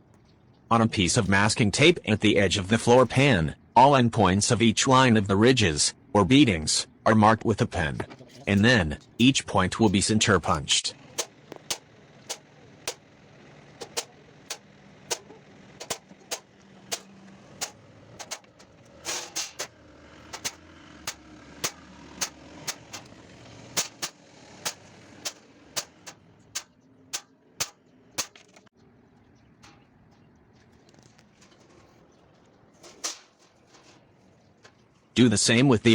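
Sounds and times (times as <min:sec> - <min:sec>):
hammer tapping metal punch: 0:11.0 - 0:13.0, 0:13.8 - 0:28.7.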